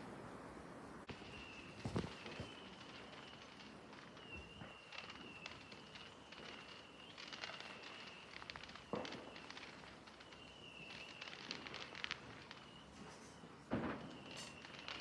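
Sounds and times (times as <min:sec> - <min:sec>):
distant fireworks crackling: 0:00.0 - 0:15.0
firework bang: 0:01.1 - 0:03.4, 0:08.8 - 0:09.5, 0:13.0 - 0:15.0
thin high whistle: 0:01.1 - 0:11.7, 0:12.3 - 0:15.0.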